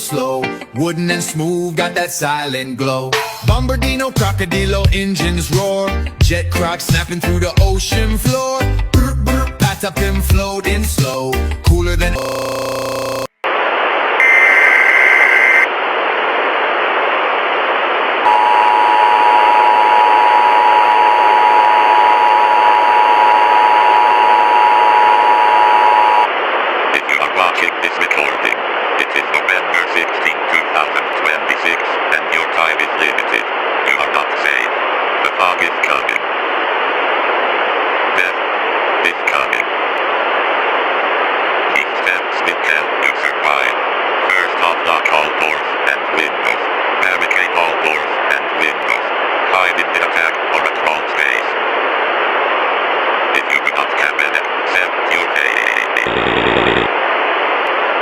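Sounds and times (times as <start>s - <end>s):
voice fragments: 12.0s - 13.3s, 26.9s - 36.3s, 38.2s - 38.4s, 39.0s - 39.7s, 41.7s - 51.6s, 53.3s - 56.9s
radio static hiss: 12.2s - 58.0s
long lower beep: 18.3s - 26.3s.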